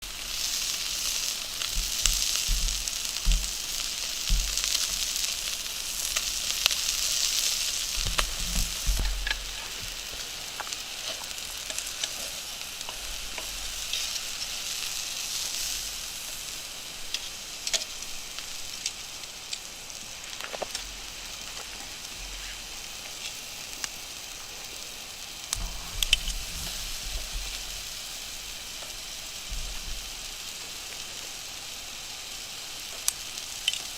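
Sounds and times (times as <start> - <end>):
burning wood crackling: 0.0 - 33.9
meat sizzling: 0.0 - 33.9
low thumps: 1.7 - 5.2, 7.9 - 10.0.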